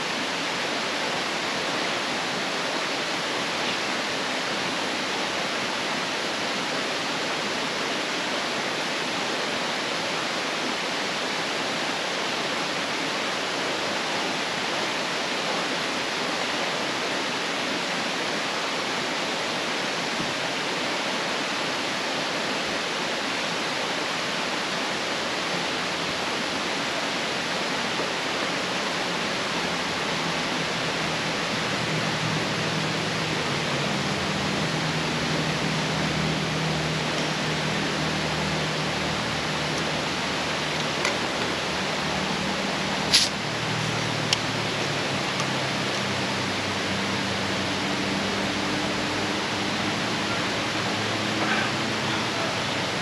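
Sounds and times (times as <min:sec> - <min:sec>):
steady rushing noise: 0:11.4 - 0:53.0.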